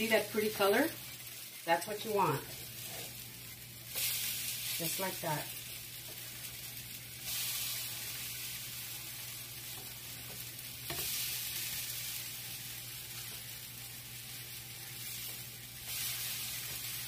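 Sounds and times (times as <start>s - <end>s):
pancakes sizzling on a griddle: 0.0s - 17.0s
spatula tap: 9.8s - 11.1s.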